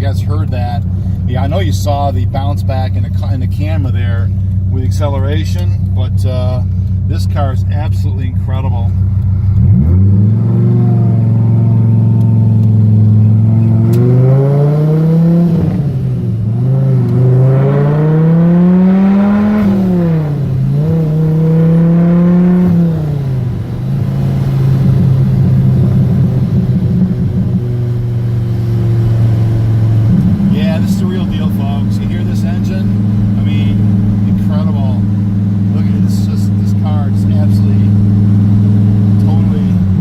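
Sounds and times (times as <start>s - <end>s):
car engine accelerating: 0.0s - 40.0s.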